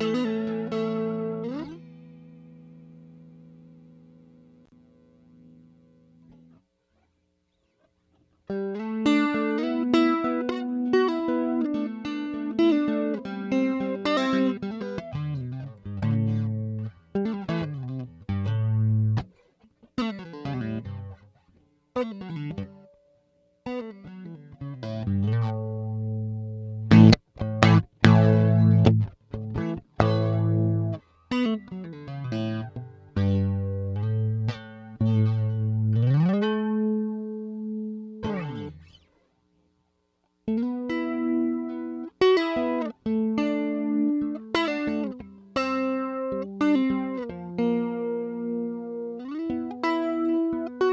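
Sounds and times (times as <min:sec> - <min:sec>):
electric guitar with flanger: 0:23.6 - 0:39.0.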